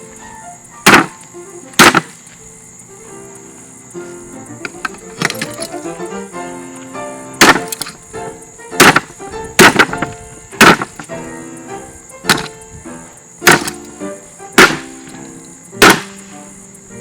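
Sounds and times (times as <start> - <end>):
background music with held notes: 0.0 - 17.0
ceiling fan being smashed: 0.8 - 2.6, 4.6 - 5.8, 7.4 - 11.4, 12.0 - 16.4.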